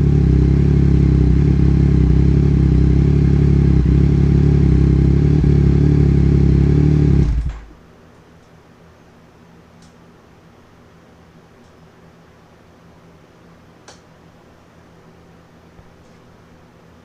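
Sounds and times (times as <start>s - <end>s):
motorcycle engine idling loudly: 0.0s - 7.7s.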